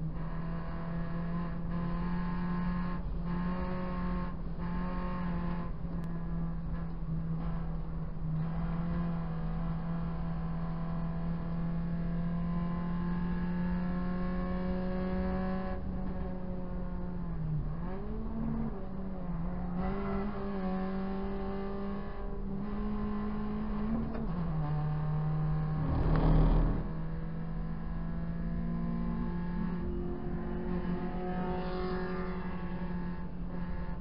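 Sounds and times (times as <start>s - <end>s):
car engine revving under load: 7.5s - 34.0s.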